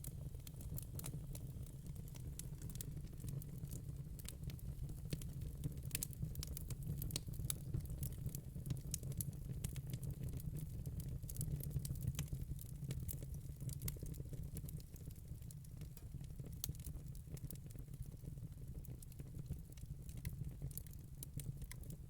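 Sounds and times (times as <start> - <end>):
fire crackling: 0.0 - 22.0.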